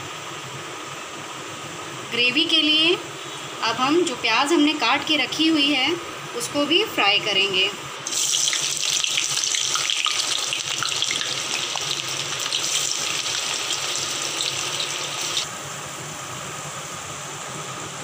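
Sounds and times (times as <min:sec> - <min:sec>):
onions sizzling in hot oil: 0:08.0 - 0:15.5.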